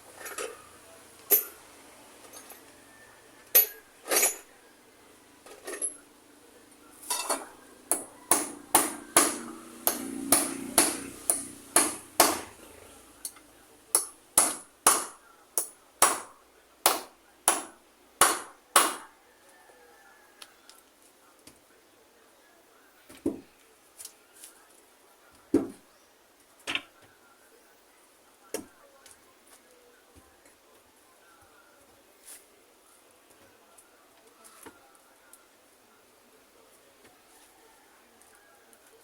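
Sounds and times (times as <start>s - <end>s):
hammer strikes: 7.2s - 12.6s, 13.9s - 19.1s.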